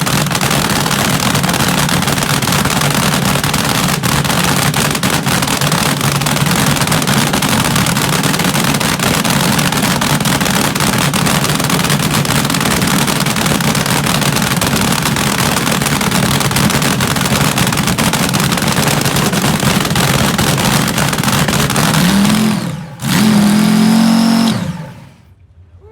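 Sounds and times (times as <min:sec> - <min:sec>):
dragster engine running loud: 0:00.0 - 0:25.3.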